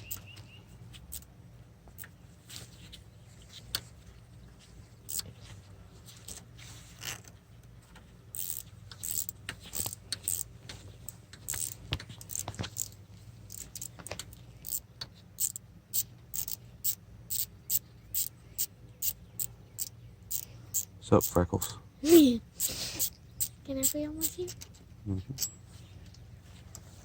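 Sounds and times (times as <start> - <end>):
ratcheting wrench clicking: 1.0 - 1.3, 5.1 - 5.3, 8.3 - 21.4, 22.6 - 24.8
metallic clinks of bolts: 25.4 - 25.7.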